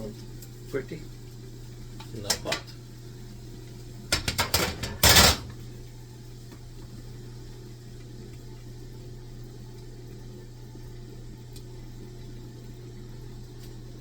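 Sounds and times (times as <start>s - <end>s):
metal pot clanking: 4.2s - 5.5s.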